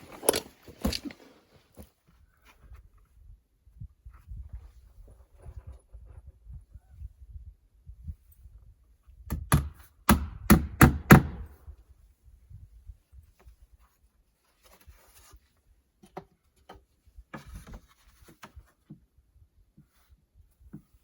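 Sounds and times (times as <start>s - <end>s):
faint scraping and handling: 0.0s - 3.4s, 12.1s - 21.0s
hammer striking wood: 9.3s - 11.4s.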